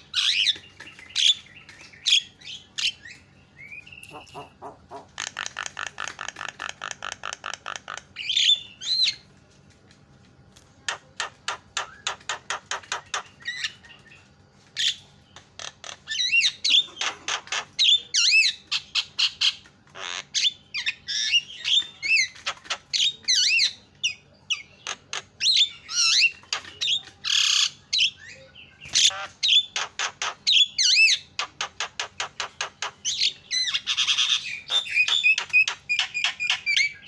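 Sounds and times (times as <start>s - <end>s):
bird chattering song: 0.0s - 9.3s, 10.7s - 37.0s.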